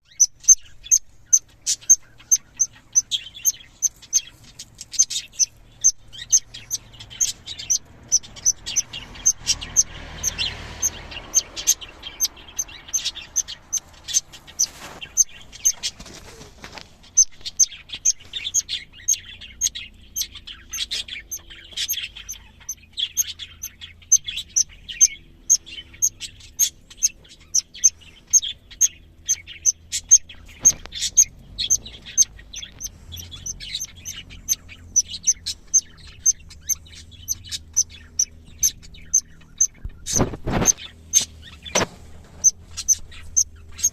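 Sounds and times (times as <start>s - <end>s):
budgerigars chirping: 0.0s - 16.0s, 17.0s - 43.9s
soft rustle: 13.8s - 17.5s, 39.8s - 43.8s.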